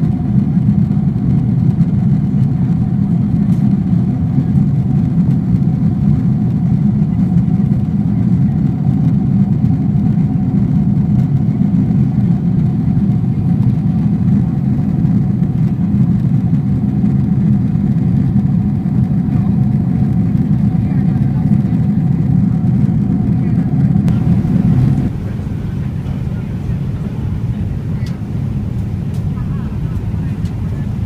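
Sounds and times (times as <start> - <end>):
airliner cabin drone: 0.0 - 31.0
faint higher hum: 20.7 - 31.0.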